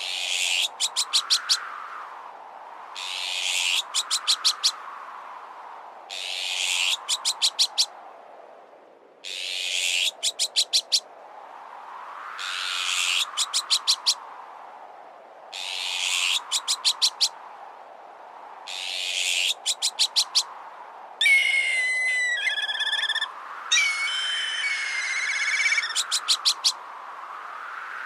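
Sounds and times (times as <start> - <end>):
wind: 0.0 - 28.0
magpie harsh rasping alarm calls: 21.2 - 26.7
kite whistling call with trill: 21.2 - 26.8.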